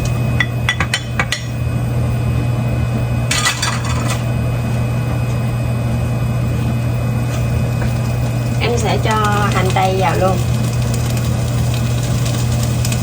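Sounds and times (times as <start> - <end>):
bacon hissing in frying pan: 8.8 - 13.0.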